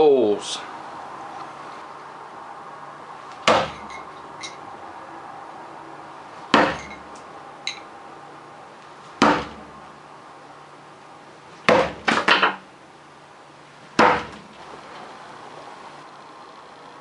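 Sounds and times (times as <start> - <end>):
throwing spikes hitting target: 3.3 - 3.9, 6.5 - 7.0
faint metallic clinks: 3.7 - 4.6, 6.8 - 7.9.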